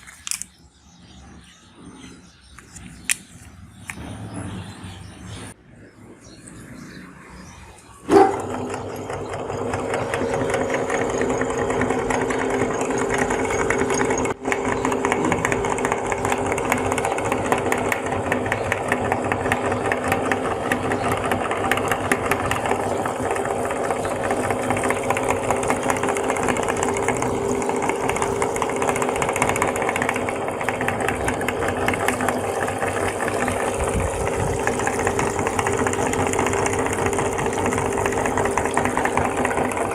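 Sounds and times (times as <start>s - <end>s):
electric meat grinder running: 8.1s - 39.9s.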